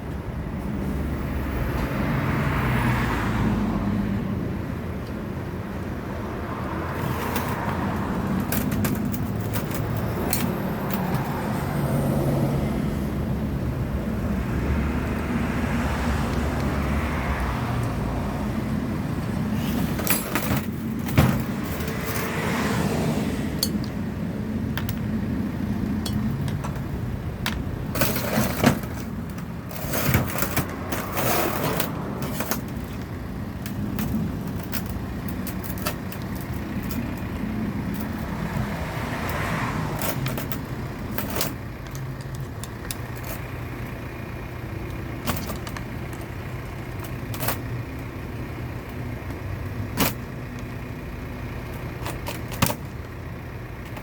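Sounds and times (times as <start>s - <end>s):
metallic clicks and knocks of tools: 7.0s - 11.4s, 23.6s - 24.0s, 24.7s - 25.1s, 26.0s - 43.5s, 44.8s - 46.3s.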